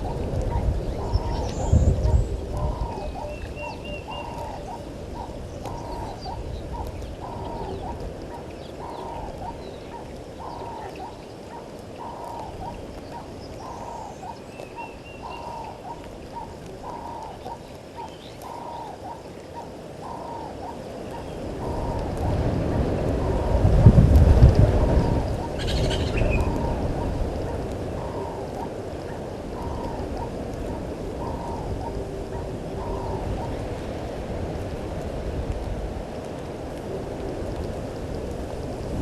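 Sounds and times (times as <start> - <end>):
wind rumble on microphone: 0.0 - 39.0
birds chirping and whistling: 0.5 - 8.0, 24.8 - 26.8.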